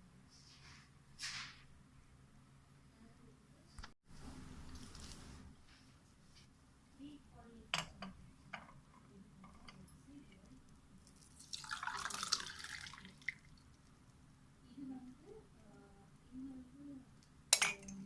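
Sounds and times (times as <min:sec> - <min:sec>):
liquid dripping: 0:10.4 - 0:14.2
tea being poured: 0:11.0 - 0:13.9
cup clinking: 0:17.5 - 0:18.0.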